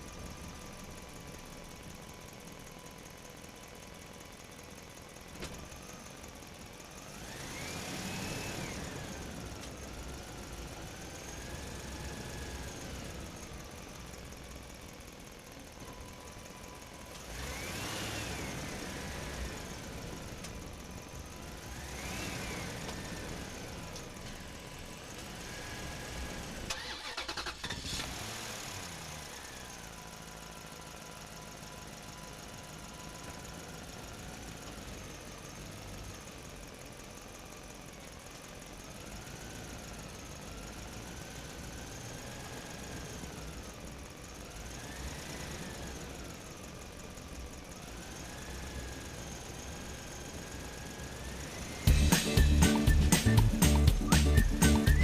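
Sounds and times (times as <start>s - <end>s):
engine revving: 7.0s - 13.2s, 17.2s - 20.0s, 21.4s - 24.0s, 25.3s - 29.4s, 50.1s - 55.0s.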